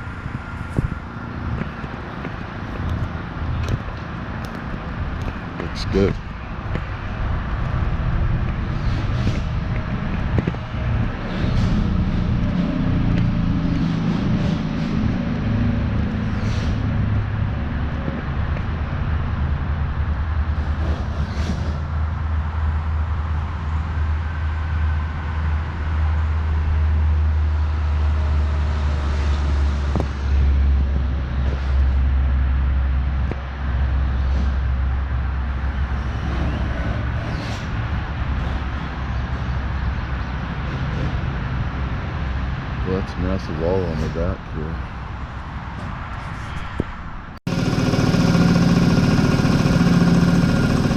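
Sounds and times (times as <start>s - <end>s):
vehicle engine running: 0.0s - 21.2s, 47.5s - 50.9s.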